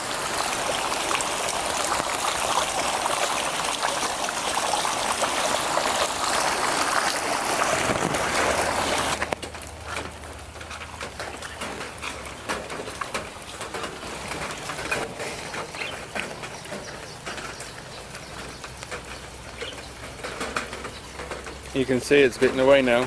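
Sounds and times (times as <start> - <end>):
rain falling: 0.0 - 23.0
raindrops tapping near microphone: 0.0 - 23.0
bird calling: 14.4 - 21.8.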